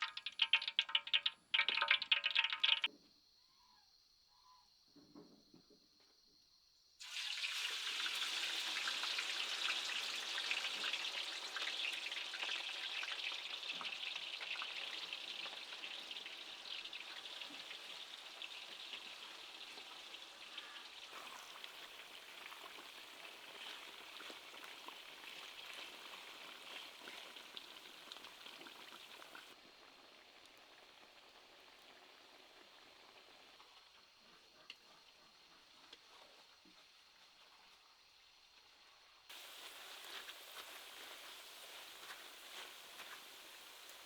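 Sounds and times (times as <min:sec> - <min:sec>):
food sizzling in hot oil: 0:00.0 - 0:02.9, 0:07.0 - 0:34.0, 0:39.3 - 0:44.0.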